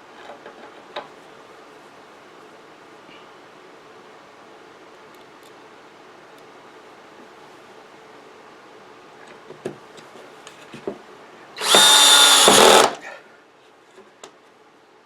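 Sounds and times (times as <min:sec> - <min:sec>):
power drill driving a screw: 0:11.6 - 0:13.0.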